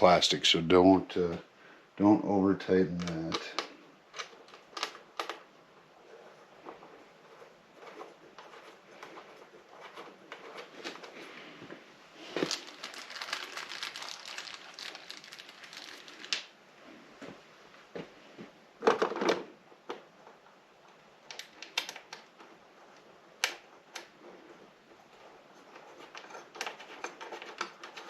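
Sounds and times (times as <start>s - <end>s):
small clicks and rustling: 2.9s - 11.6s, 12.2s - 16.5s, 18.8s - 28.0s.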